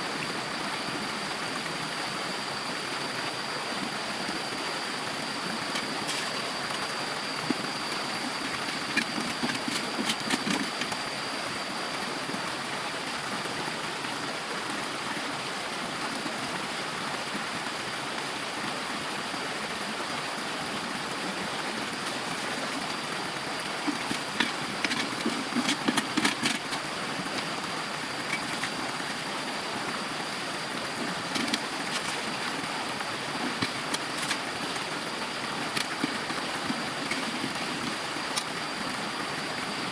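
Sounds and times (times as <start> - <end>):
stream water flowing: 0.0 - 39.9
sharp clicks and knocks: 5.7 - 11.0, 23.8 - 27.5, 31.3 - 32.3.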